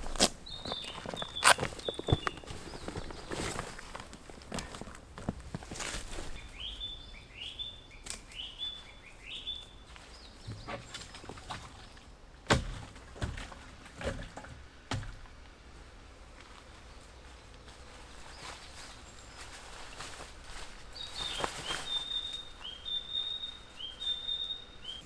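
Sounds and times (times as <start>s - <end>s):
footsteps: 0.0s - 6.4s.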